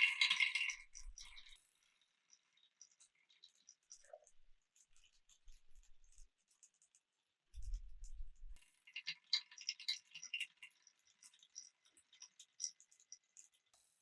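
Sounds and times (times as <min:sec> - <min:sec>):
marbles rolling on wooden track: 0:00.0 - 0:01.6, 0:09.0 - 0:13.6.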